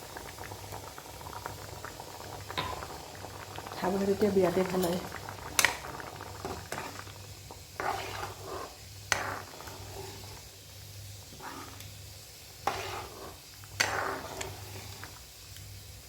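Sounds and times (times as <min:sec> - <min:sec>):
pot simmering: 0:00.0 - 0:16.0.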